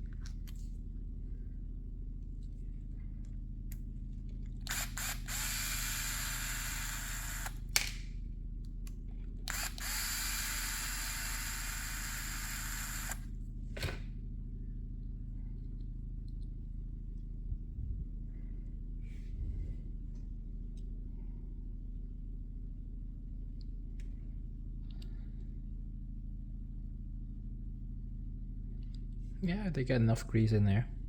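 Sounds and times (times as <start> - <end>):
electric screwdriver running: 4.6 - 7.7, 9.5 - 13.3.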